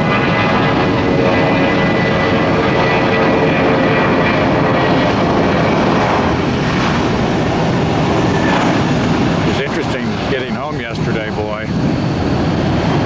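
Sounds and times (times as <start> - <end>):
jet engine whine: 0.0 - 13.0
jet engines roaring: 0.0 - 13.0.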